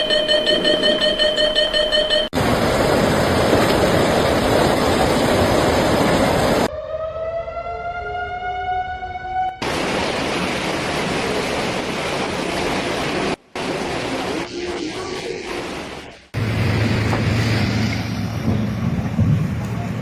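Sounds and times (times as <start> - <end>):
rising siren wail: 6.6 - 10.0.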